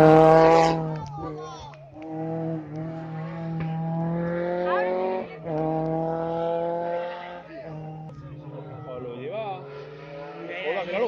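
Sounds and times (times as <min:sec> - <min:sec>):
rally car engine revving high: 0:00.0 - 0:11.0.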